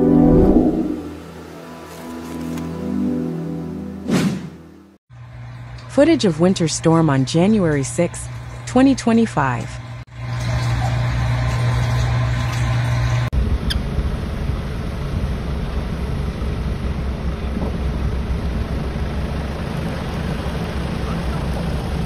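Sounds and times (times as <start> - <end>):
vehicle engine humming: 5.1 - 22.0
steady rumbling noise: 5.2 - 22.0.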